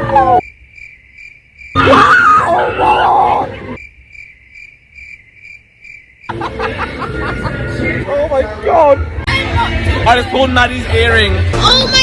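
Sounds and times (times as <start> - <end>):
person shrieking: 1.8 - 3.6.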